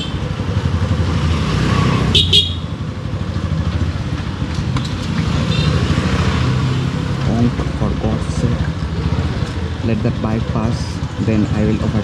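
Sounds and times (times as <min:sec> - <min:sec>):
motorcycle engine running: 0:00.0 - 0:12.0
horn toots: 0:02.0 - 0:02.7.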